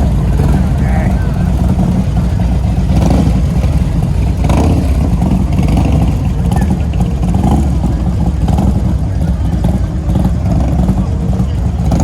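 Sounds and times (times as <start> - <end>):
motorcycle engines rumbling: 0.0 - 12.0.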